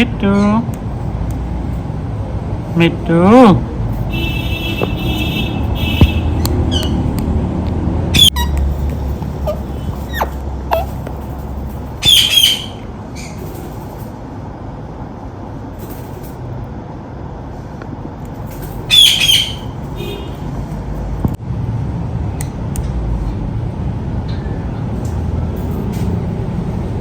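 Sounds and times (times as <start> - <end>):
parakeet screeching: 6.6 - 7.1, 8.1 - 8.7, 9.4 - 11.0, 12.0 - 13.4, 18.9 - 19.8.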